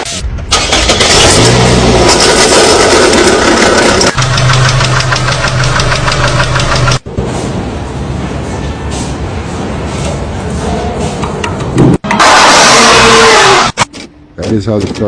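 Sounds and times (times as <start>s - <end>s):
car engine knocking: 3.2s - 7.0s.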